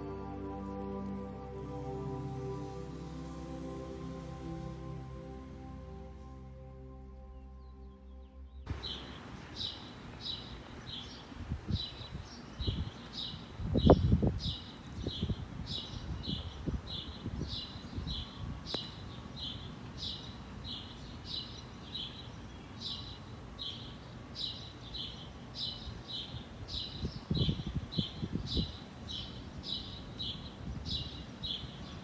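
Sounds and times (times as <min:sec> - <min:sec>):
bird chirping: 0:07.2 - 0:32.0.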